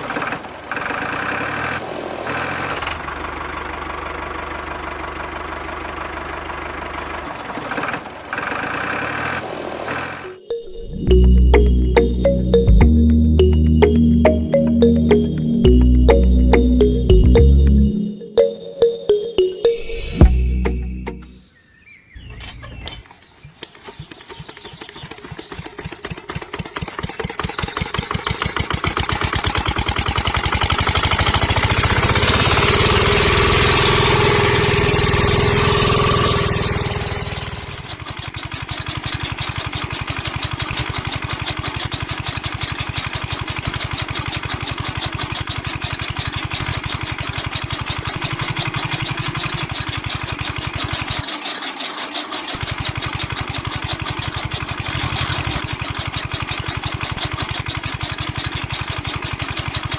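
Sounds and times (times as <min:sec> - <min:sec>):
tractor engine running chaff cutter: 0:00.0 - 0:10.2, 0:24.1 - 0:59.9.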